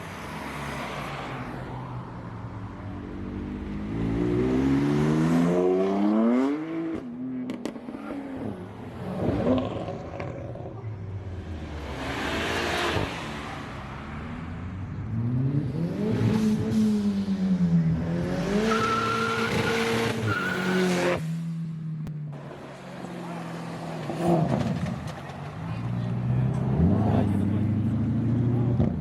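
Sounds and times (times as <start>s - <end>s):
car rushing past: 0.0s - 21.5s.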